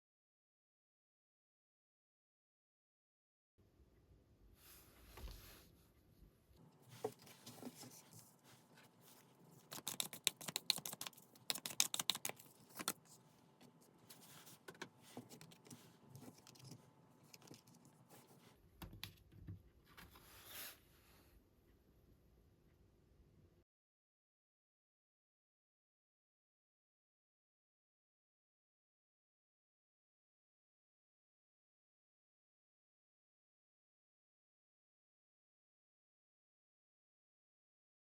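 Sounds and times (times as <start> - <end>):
cards rustling and sliding: 6.9 - 18.4
crisp card clicks: 9.6 - 13.1.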